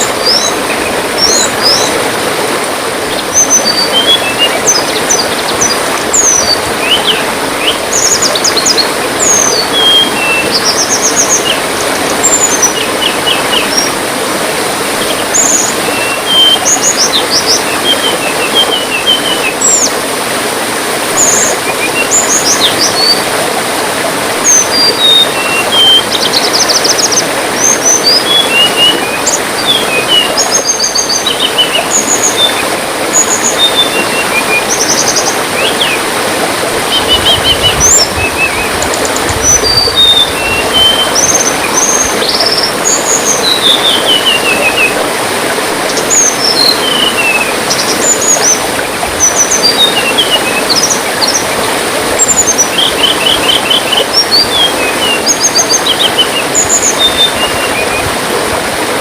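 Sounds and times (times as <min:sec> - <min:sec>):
birds chirping and trilling: 0:00.0 - 0:02.0, 0:03.1 - 0:14.0, 0:21.2 - 0:23.3, 0:24.4 - 0:36.0, 0:36.8 - 0:45.0, 0:45.9 - 0:51.5, 0:52.2 - 0:58.1
trickle of running water: 0:00.0 - 0:59.0.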